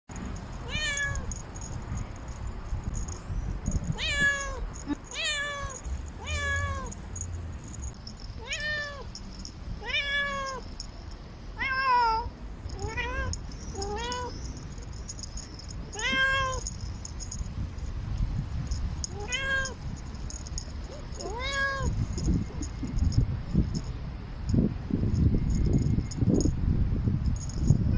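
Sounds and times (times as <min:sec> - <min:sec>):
cat meowing: 0:00.6 - 0:01.4, 0:03.9 - 0:07.0, 0:08.4 - 0:09.1, 0:09.8 - 0:10.6, 0:11.6 - 0:14.4, 0:15.9 - 0:16.7, 0:19.1 - 0:19.8, 0:21.2 - 0:22.0.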